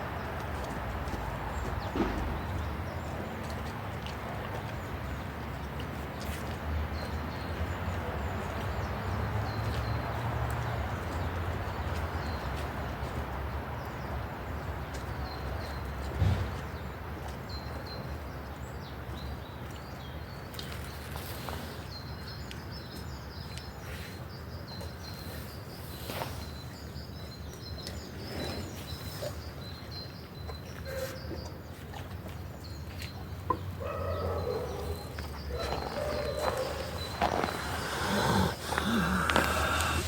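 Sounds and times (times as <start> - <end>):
small birds chirping: 13.7 - 40.0.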